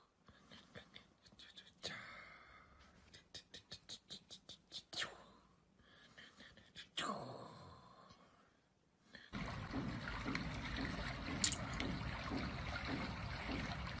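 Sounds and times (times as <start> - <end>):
water trickling and bubbling from app: 9.3 - 14.0.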